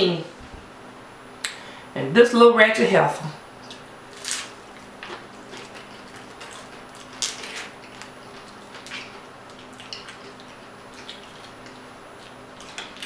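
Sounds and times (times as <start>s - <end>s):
wet chewing sounds: 3.6s - 13.0s
tortilla chips crackling: 4.1s - 13.0s.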